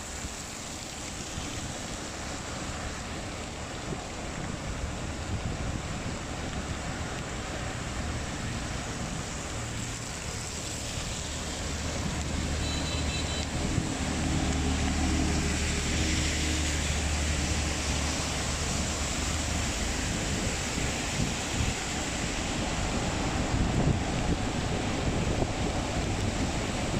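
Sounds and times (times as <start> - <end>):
heavy rain hiss: 0.0 - 26.9
wet road noise: 0.0 - 26.9
vehicle engine hum: 6.2 - 26.9.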